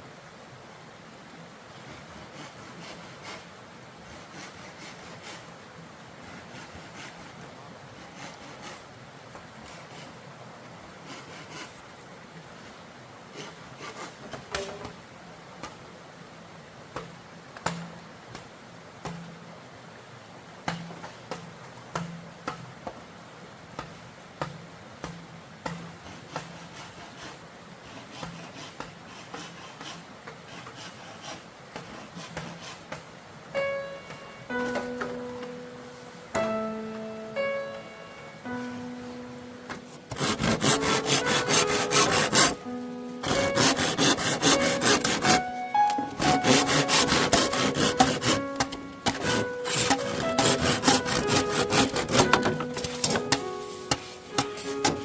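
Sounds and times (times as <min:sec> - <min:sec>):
faint steady noise: 0:00.0 - 0:55.0
scraping: 0:39.7 - 0:55.0
clicks and knocks: 0:47.2 - 0:55.0.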